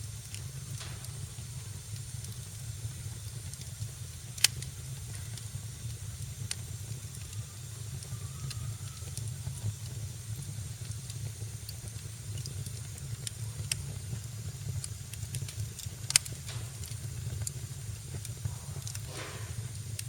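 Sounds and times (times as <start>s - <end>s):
fire crackling in fireplace: 0.0s - 20.0s
loud sharp pop from fire: 0.3s - 5.6s, 14.8s - 20.0s.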